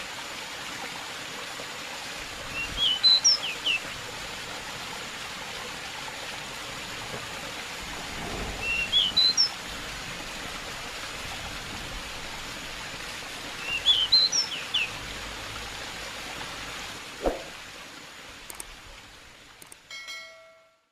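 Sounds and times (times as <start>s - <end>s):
running water hiss: 0.0s - 20.0s
bird chirping song: 2.5s - 3.8s, 8.6s - 9.5s, 13.6s - 14.9s.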